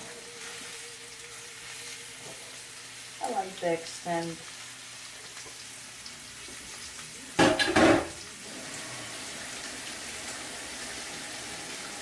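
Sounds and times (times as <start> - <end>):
steak sizzling in a pan: 0.0 - 12.0.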